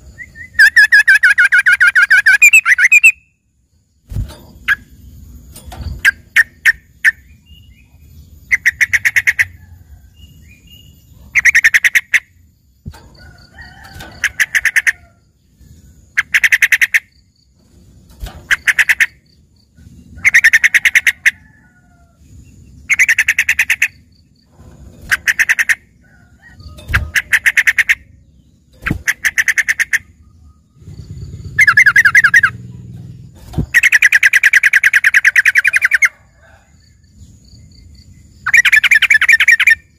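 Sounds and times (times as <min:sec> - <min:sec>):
bulbul singing chattering notes: 0:31.3 - 0:32.7.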